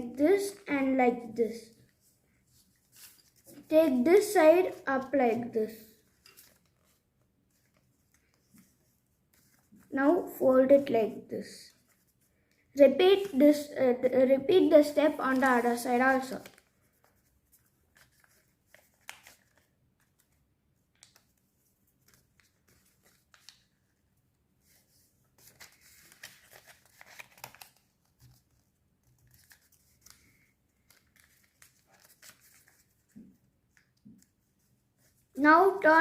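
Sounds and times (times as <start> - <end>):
paper crinkling being folded: 1.7 - 4.0, 5.8 - 9.9, 14.7 - 35.3.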